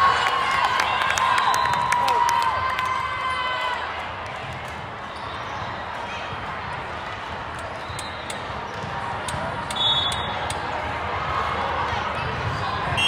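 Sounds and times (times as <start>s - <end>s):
crowd murmur: 3.6s - 13.0s.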